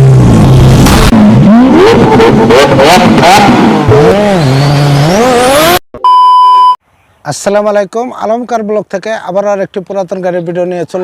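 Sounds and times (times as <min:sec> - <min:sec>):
car engine revving: 0:00.0 - 0:05.8.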